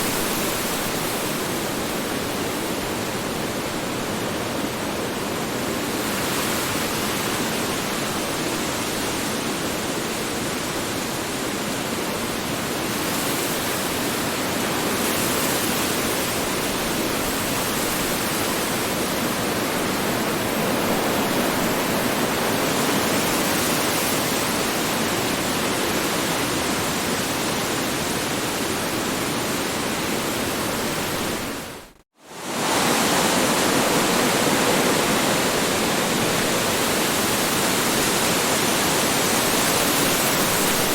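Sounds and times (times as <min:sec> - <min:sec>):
strong wind blowing: 0:16.5 - 0:40.9.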